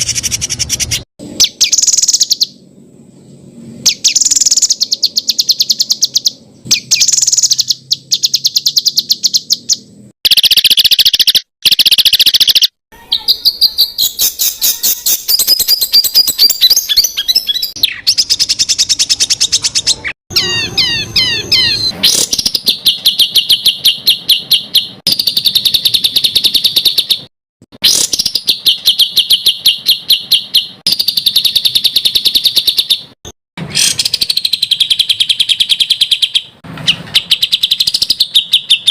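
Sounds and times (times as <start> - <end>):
songbird trills: 3.2 - 27.3.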